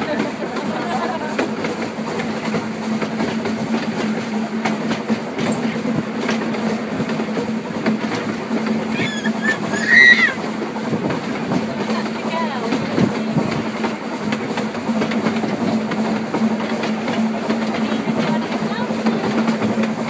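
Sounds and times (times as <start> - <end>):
carriage wheels rumbling on rails: 0.0 - 20.0
high wheel squeal: 8.9 - 10.5.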